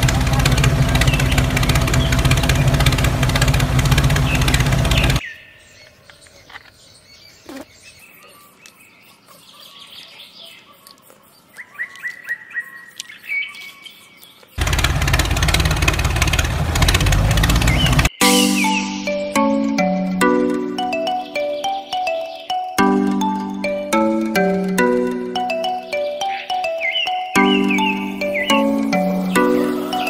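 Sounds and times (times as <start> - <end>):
tractor engine idling: 0.0 - 5.2, 14.6 - 18.2, 27.4 - 30.0
birds chirping: 0.0 - 30.0.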